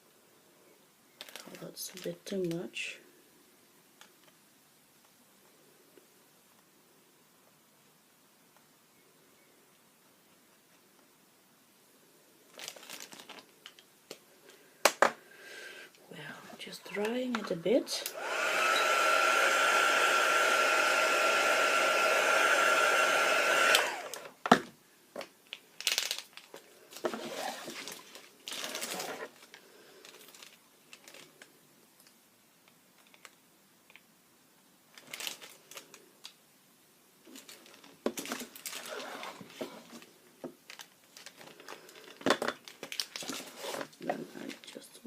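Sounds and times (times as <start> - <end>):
heat tool blowing: 17.9 - 24.3
taps and rustles of handling: 37.3 - 44.7.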